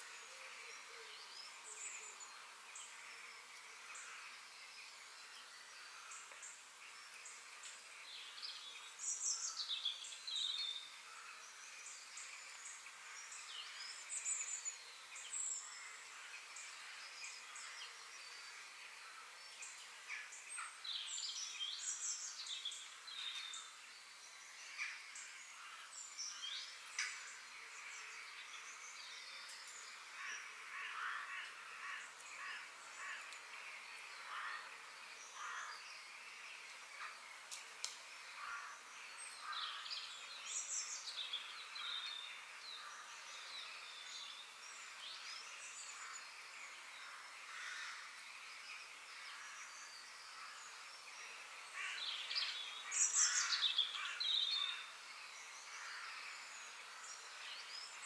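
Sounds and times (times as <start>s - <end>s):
forest birds singing: 0.0s - 58.0s.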